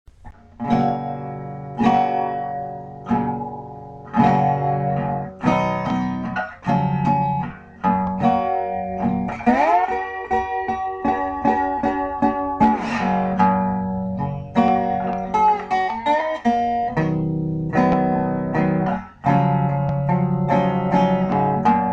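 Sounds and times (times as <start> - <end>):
plucked guitar music: 0.1 - 21.9.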